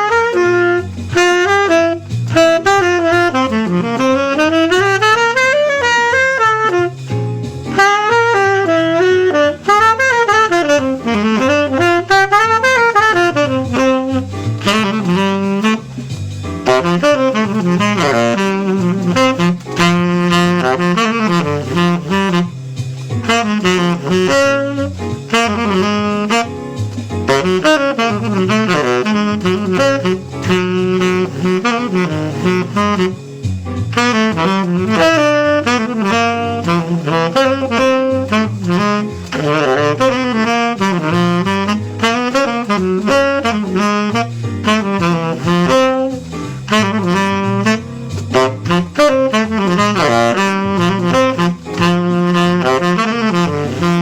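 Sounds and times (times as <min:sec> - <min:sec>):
bass line: 0:00.0 - 0:54.0
saxophone jazz solo: 0:00.0 - 0:54.0.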